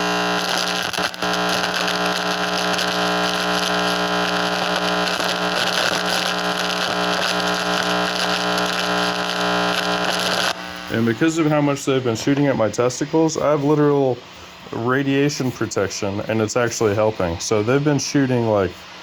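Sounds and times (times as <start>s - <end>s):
electrical buzz and hum: 0.0s - 12.0s
crackling static hiss: 0.0s - 19.0s.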